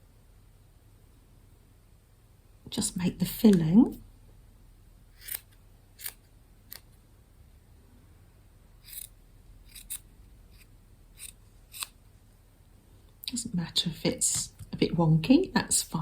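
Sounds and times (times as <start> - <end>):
scissors snipping: 5.2 - 6.8, 8.9 - 9.1, 9.7 - 12.0.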